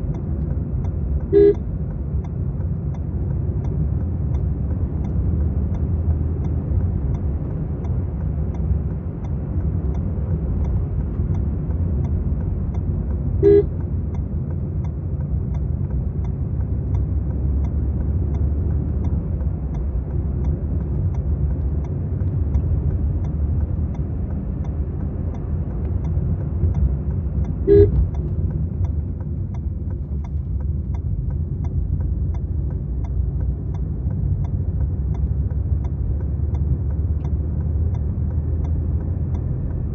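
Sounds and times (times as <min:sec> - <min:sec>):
car engine and road noise: 0:00.0 - 0:39.9
car horn toot: 0:01.3 - 0:01.6, 0:13.4 - 0:13.7, 0:27.7 - 0:28.0.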